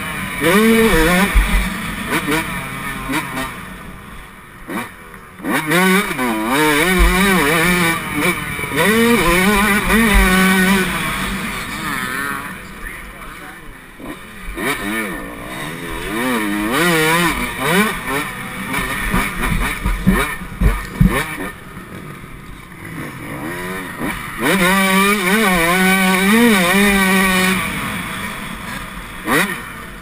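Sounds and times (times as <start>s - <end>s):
motocross engine revving: 0.0s - 30.0s
low thumps: 0.8s - 1.8s, 6.8s - 7.8s, 8.9s - 11.4s, 18.8s - 21.5s.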